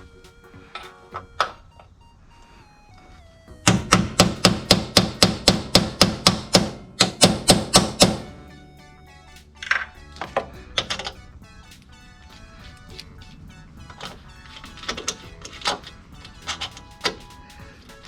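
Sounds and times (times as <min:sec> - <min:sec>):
hammer striking sheet metal: 0:03.6 - 0:08.5.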